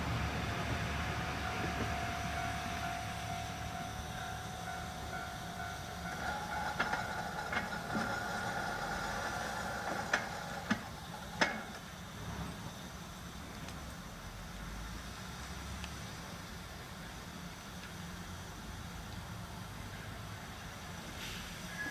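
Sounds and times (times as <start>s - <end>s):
high whine from wheels: 0.0s - 13.1s
wheels clicking over rail joints: 4.7s - 12.0s.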